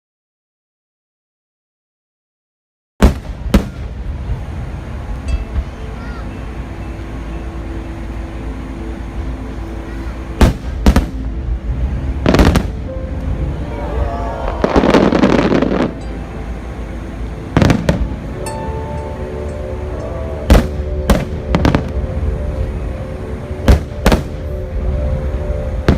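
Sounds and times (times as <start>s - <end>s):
crackling firework stars: 3.0s - 6.2s, 9.9s - 11.4s, 12.2s - 16.7s, 17.5s - 22.8s.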